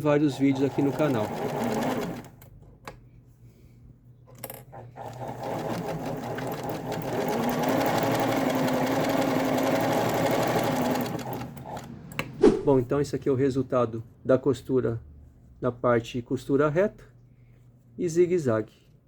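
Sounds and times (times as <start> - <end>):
sewing machine stitching: 0.0 - 2.4, 4.7 - 11.9
sewing machine clicks: 0.3 - 2.5, 5.0 - 11.9.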